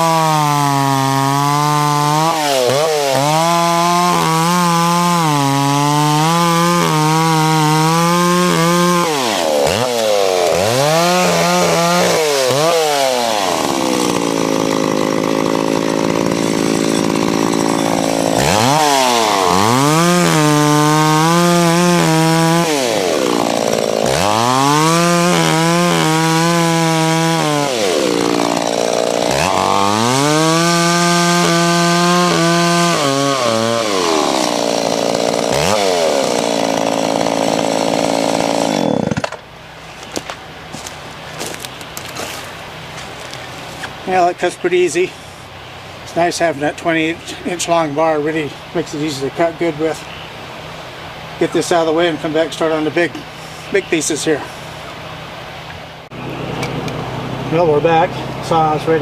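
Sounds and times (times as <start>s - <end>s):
chainsaw cutting branches: 0.0s - 45.4s.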